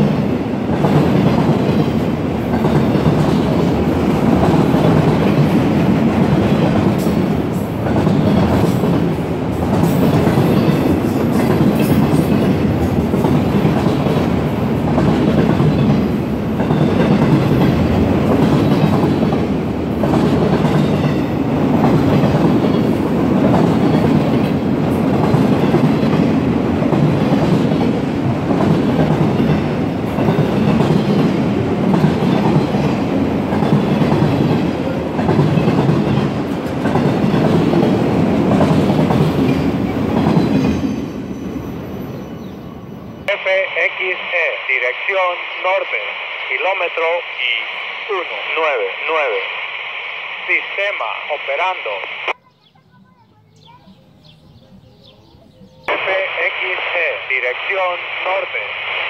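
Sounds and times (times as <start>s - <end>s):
train wheels clickety-clack on rail: 0.0s - 42.5s.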